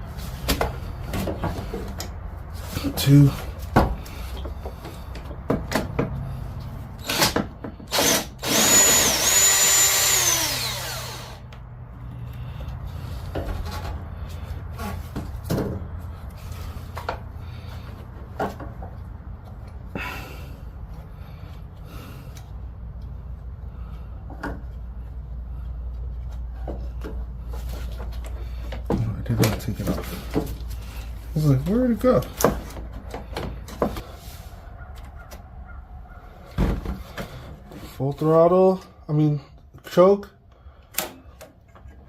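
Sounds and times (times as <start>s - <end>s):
power drill running: 7.0s - 11.6s.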